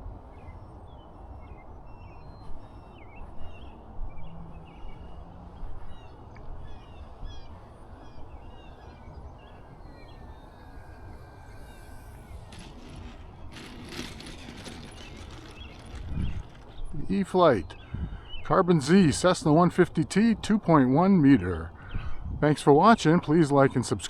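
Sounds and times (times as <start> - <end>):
wind rumbling on microphone: 0.0 - 23.7
small birds chirping: 0.1 - 19.1.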